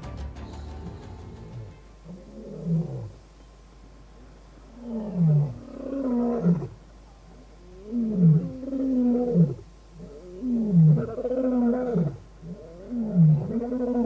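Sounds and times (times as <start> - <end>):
lion roaring: 0.6 - 3.2, 4.8 - 6.8, 7.8 - 14.0.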